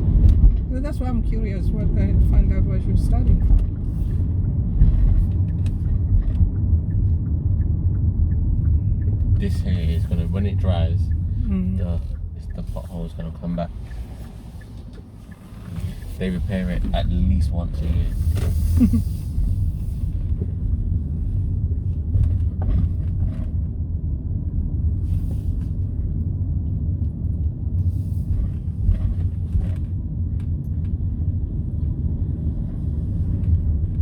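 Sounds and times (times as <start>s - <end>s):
car engine and tyre rumble: 0.0s - 34.0s.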